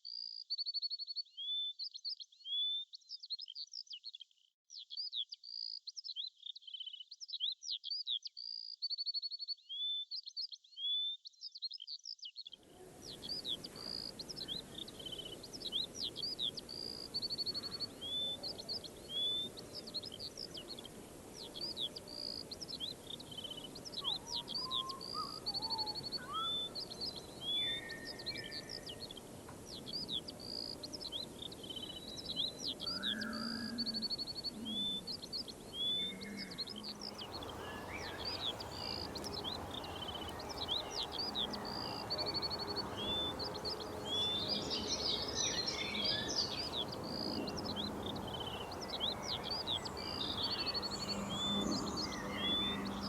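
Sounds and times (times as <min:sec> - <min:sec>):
songbird singing: 0:09.2 - 0:53.0
outdoor background hiss: 0:12.6 - 0:53.0
faint lower bird calls: 0:12.7 - 0:53.0.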